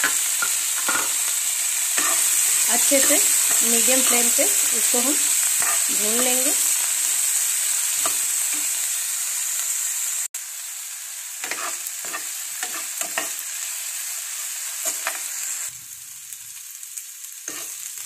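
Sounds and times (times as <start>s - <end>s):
steel spoon scraping a pan: 0.0s - 7.3s, 11.4s - 13.4s, 14.8s - 15.4s, 17.5s - 17.9s
vegetables sizzling in a frying pan: 0.0s - 18.0s.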